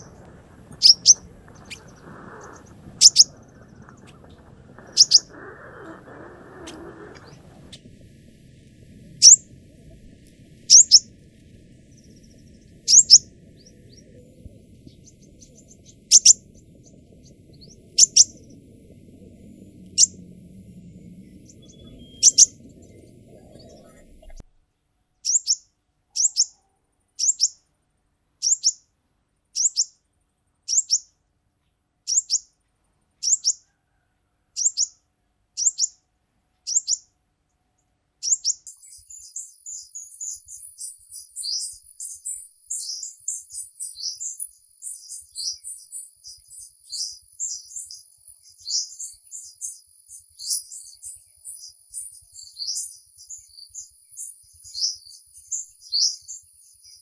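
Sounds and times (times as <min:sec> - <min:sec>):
high bird twittering: 0:00.0 - 0:18.8, 0:19.9 - 0:20.2, 0:21.2 - 0:24.4, 0:25.3 - 0:25.6, 0:26.2 - 0:26.5, 0:27.2 - 0:27.6, 0:28.4 - 0:28.8, 0:29.6 - 0:29.9, 0:30.7 - 0:31.0, 0:32.1 - 0:32.4, 0:33.2 - 0:33.6, 0:34.6 - 0:34.9, 0:35.6 - 0:35.9, 0:36.7 - 0:37.0, 0:38.2 - 0:45.6
songbird chirping: 0:00.0 - 0:24.5, 0:25.2 - 0:27.7, 0:28.4 - 0:28.9, 0:29.6 - 0:30.1, 0:30.7 - 0:31.2, 0:32.1 - 0:32.6, 0:33.2 - 0:35.0, 0:35.6 - 0:37.6, 0:38.2 - 0:57.0.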